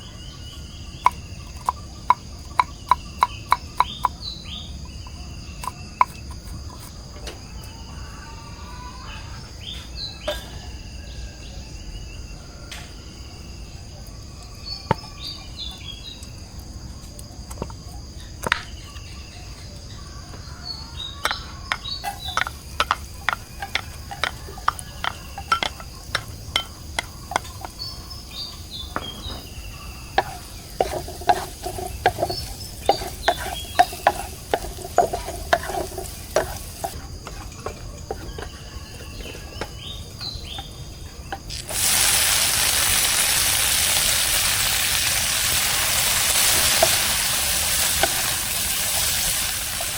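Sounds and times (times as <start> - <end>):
bird chirps: 0.0 - 16.3, 18.1 - 37.0, 38.1 - 41.6
crickets chirping: 0.0 - 49.9
utensil beating in a bowl: 1.0 - 6.9, 21.2 - 38.6
food sizzling in hot oil: 21.2 - 38.1, 41.3 - 49.9.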